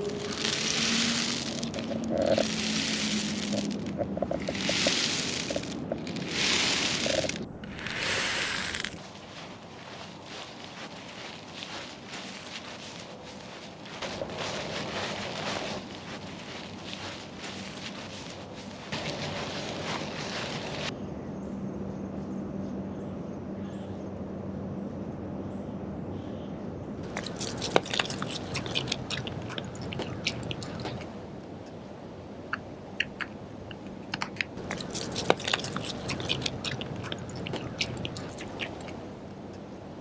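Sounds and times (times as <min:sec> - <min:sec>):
footsteps crunching on ground: 0:00.0 - 0:21.0.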